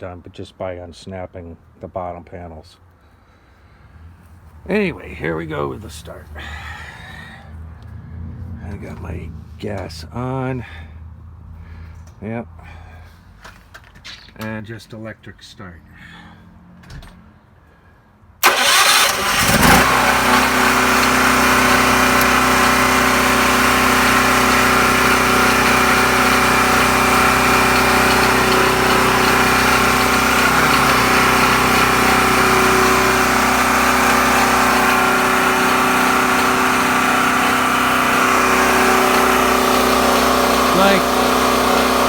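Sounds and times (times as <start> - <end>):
generator engine running: 18.4 - 42.0
generator starter cranking: 18.4 - 42.0.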